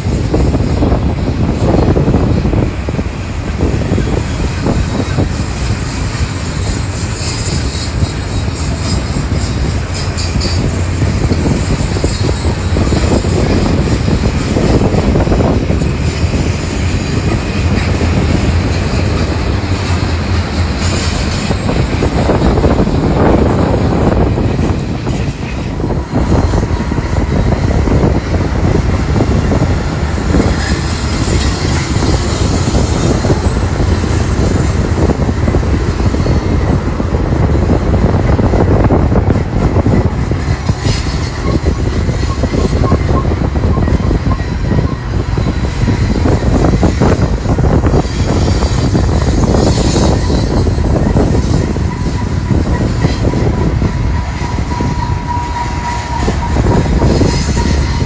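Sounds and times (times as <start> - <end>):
steel wheels rumbling on rails: 0.0 - 58.0
wheels clattering over rail joints: 0.0 - 58.0.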